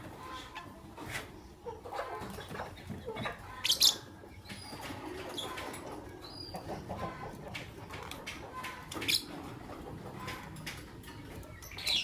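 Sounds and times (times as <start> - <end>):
lovebirds chirping: 2.9 - 7.2, 11.3 - 12.0.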